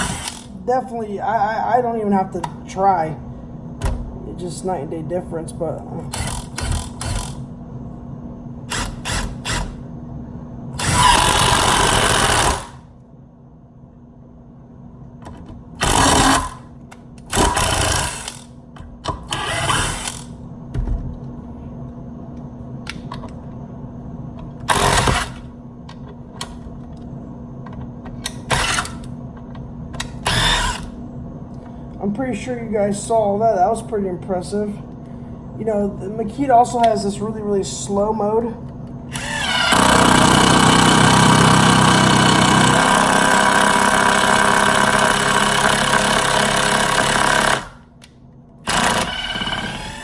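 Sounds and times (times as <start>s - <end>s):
impact driver bursts: 0.0s - 0.5s, 6.2s - 7.4s, 8.7s - 9.8s, 10.8s - 12.8s, 15.8s - 16.6s, 17.3s - 18.5s, 24.7s - 25.4s, 30.2s - 30.9s, 39.1s - 47.8s, 48.6s - 50.0s.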